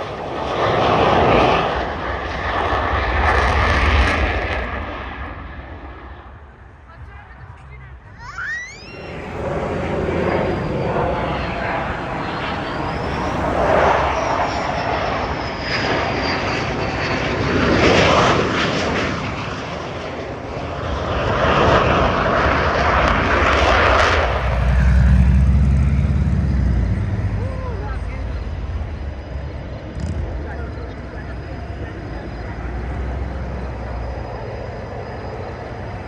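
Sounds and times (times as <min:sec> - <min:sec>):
airplanes flying by: 0:00.0 - 0:36.0
faint high whine: 0:08.2 - 0:17.0, 0:24.0 - 0:36.0.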